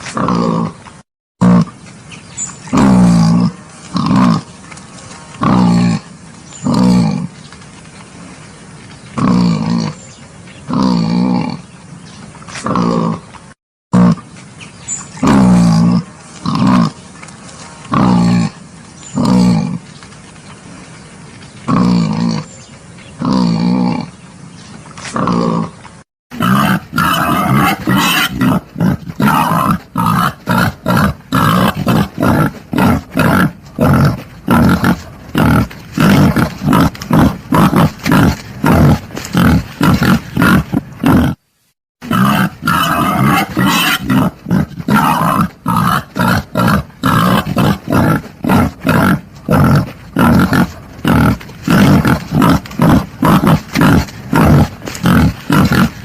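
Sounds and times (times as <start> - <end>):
wild boar grunting: 0.0 - 0.8, 1.4 - 1.8, 2.7 - 4.5, 5.3 - 7.3, 9.2 - 10.0, 10.7 - 11.7, 12.5 - 13.3, 15.2 - 17.0, 17.8 - 19.8, 21.7 - 24.2, 25.0 - 25.8, 26.4 - 41.4, 42.0 - 56.0.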